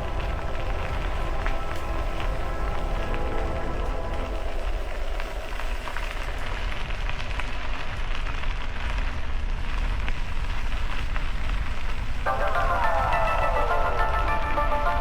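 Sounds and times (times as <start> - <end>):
music with falling glide: 0.0 - 5.2, 12.3 - 15.0
wind on microphone: 0.0 - 12.3
bike tyres on gravel: 0.0 - 14.7.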